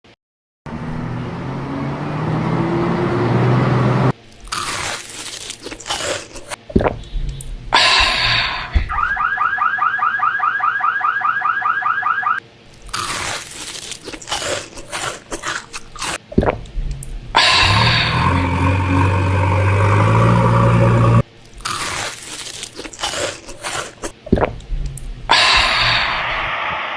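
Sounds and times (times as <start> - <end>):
vehicle engine hum: 0.7 - 4.3, 6.6 - 9.2, 15.3 - 21.3
sharp knocks and crunching hits: 4.4 - 9.2, 12.8 - 18.2, 21.6 - 25.8
car alarm warbling: 8.8 - 12.4, 17.6 - 21.2.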